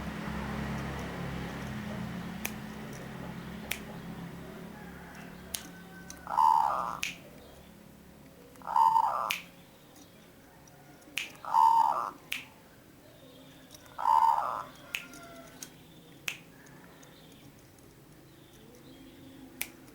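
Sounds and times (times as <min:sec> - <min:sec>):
dove cooing: 0:00.5 - 0:17.1
sharp clicks: 0:02.4 - 0:04.1, 0:05.1 - 0:06.3, 0:06.9 - 0:12.6, 0:13.5 - 0:19.0, 0:19.6 - 0:19.9.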